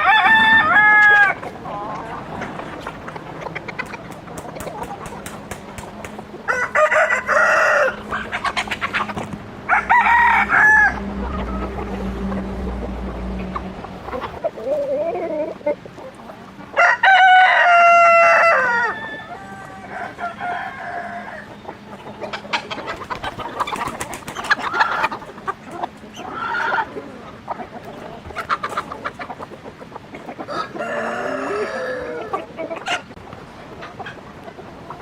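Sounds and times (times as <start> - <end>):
rooster crowing: 0.0 - 1.4, 6.4 - 8.3, 9.7 - 12.2, 16.8 - 21.5, 30.5 - 32.3
chickens clucking: 0.0 - 35.0.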